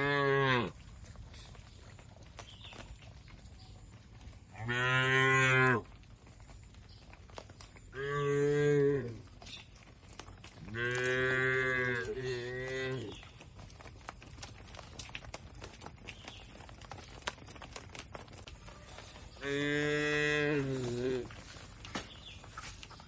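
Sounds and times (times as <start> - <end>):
cattle mooing: 0.0 - 0.8, 4.6 - 5.9, 10.7 - 13.2, 19.4 - 21.3.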